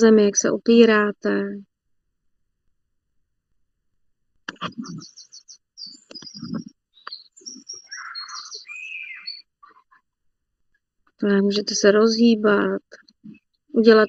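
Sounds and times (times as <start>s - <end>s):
birds chirping and trilling: 4.6s - 10.1s, 13.0s - 14.0s.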